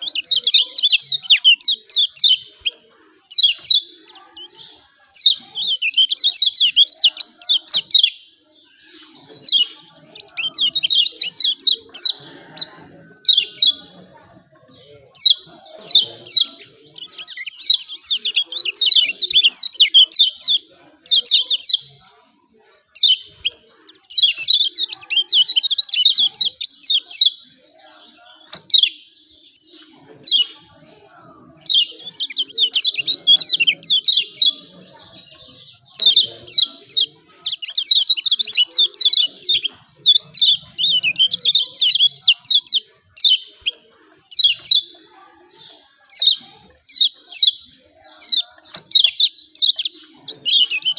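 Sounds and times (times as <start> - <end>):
bird high sharp chirps: 0.0 - 14.5, 15.2 - 22.0, 31.5 - 50.9.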